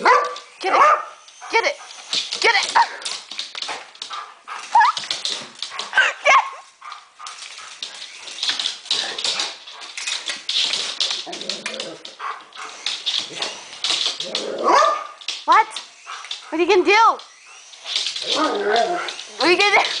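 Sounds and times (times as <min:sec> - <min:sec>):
clicking and scuffling: 0:00.0 - 0:20.0
dog whining and yelping: 0:04.5 - 0:06.7, 0:17.2 - 0:20.0.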